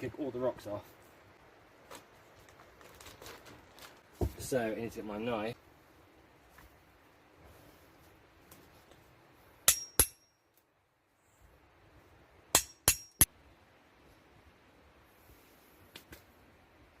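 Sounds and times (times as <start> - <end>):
metal tool striking stone: 9.6 - 10.4, 12.5 - 13.3.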